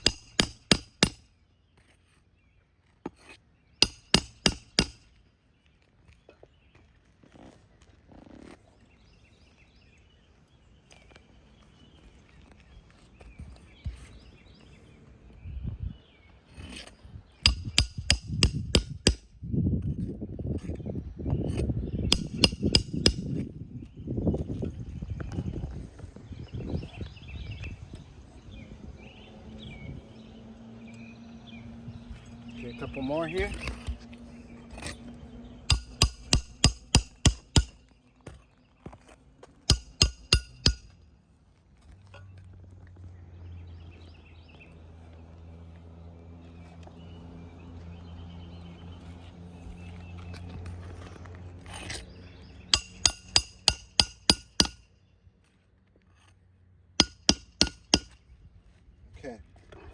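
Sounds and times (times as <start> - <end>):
hammer striking metal: 0.0 - 1.2, 3.8 - 5.0, 17.4 - 19.3, 22.1 - 23.2, 35.7 - 37.8, 39.7 - 41.0, 52.7 - 54.8, 57.0 - 58.2.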